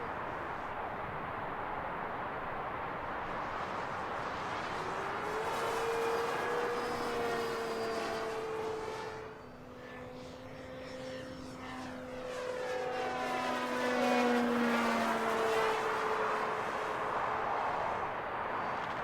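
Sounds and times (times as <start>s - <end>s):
model plane motor droning: 3.7s - 17.8s.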